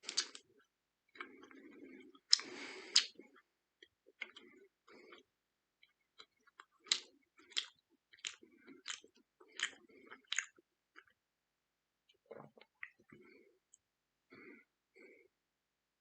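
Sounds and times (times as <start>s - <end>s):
chewing crunches: 0.0s - 11.2s
wet mouth sounds: 0.0s - 11.2s.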